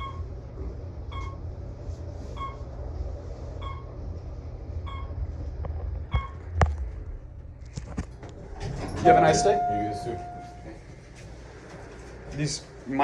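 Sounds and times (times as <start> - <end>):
elevator low hum: 0.0 - 13.0
short electronic beep: 9.0 - 10.7.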